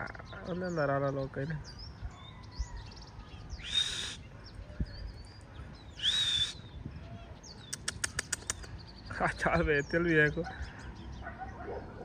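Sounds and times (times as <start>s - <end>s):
small birds chirping: 0.0s - 12.0s
bird screeching: 3.5s - 4.3s, 6.0s - 7.2s.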